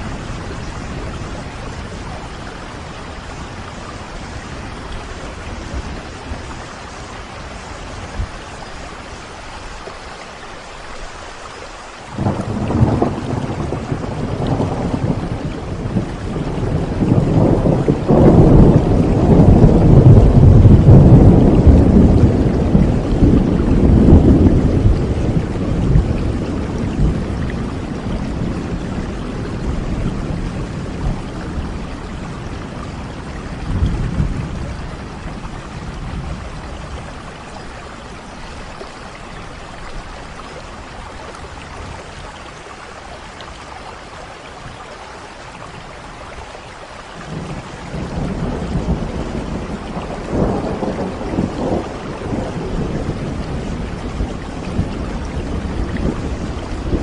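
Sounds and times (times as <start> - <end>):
steady rain: 0.0 - 57.0
rolling thunder: 12.2 - 42.2, 47.2 - 57.0.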